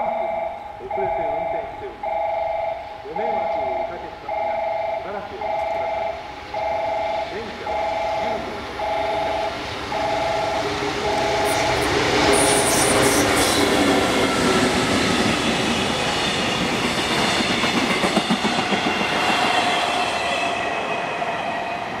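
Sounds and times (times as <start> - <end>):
pulsing electronic warning tone: 0.0 - 13.6
freight train passing: 0.0 - 22.0
high wheel squeal: 9.0 - 17.4.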